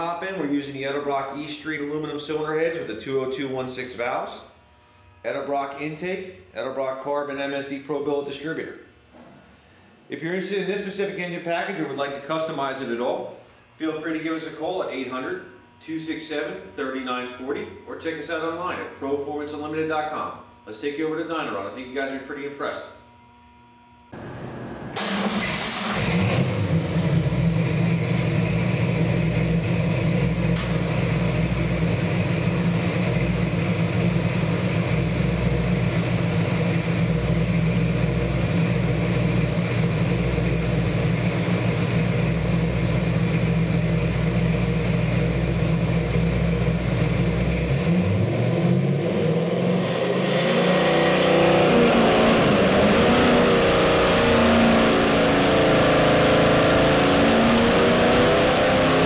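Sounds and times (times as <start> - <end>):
vee-eight engine revving: 24.2 - 59.0.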